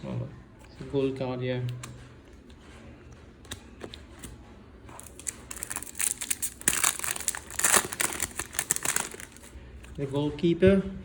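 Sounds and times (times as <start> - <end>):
card wrapper crinkling and tearing: 4.9 - 9.6.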